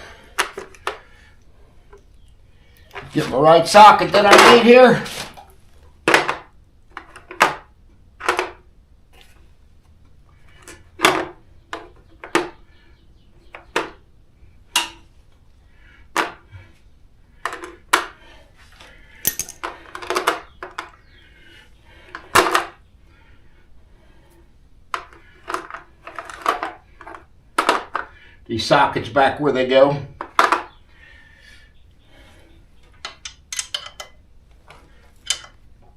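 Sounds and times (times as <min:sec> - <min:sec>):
metal sockets clinking: 0:19.2 - 0:20.5, 0:33.0 - 0:34.2, 0:35.2 - 0:35.6.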